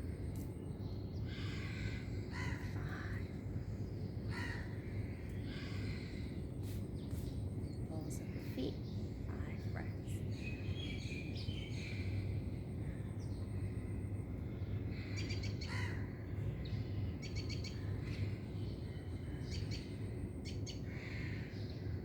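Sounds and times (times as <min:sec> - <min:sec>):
birds chirping: 0:00.0 - 0:22.0
steady low hum: 0:00.0 - 0:22.0.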